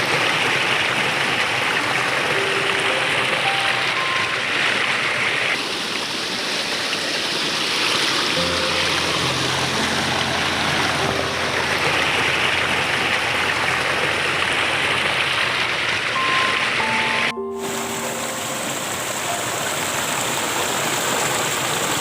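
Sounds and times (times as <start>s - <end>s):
brook water rushing: 0.0s - 22.0s
soft music of held notes: 1.9s - 5.3s, 8.3s - 22.0s.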